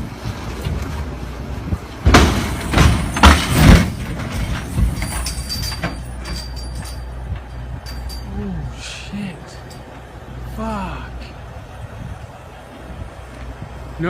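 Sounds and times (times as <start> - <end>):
low vehicle rumble: 0.0 - 14.0
vehicle crash impacts: 2.0 - 6.7.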